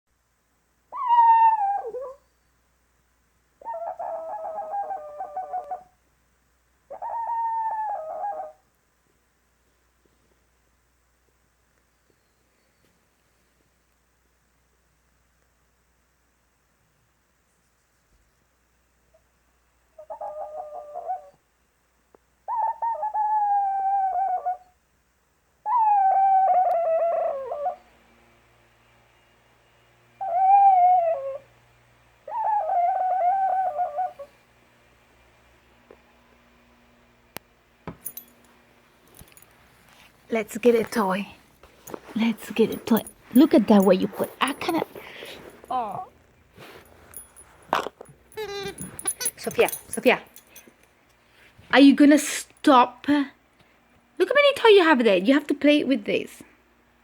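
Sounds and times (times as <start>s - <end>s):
puppy whining: 0.9s - 2.3s, 3.6s - 5.9s, 6.9s - 8.6s, 20.0s - 21.4s, 22.5s - 24.7s, 25.6s - 27.8s, 30.2s - 31.5s, 32.3s - 34.3s, 41.8s - 50.7s.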